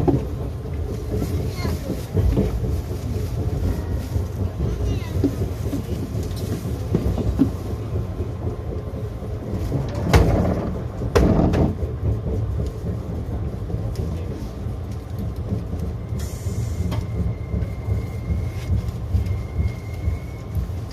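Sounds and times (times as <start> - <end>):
electric train rumbling on track: 0.0 - 20.9.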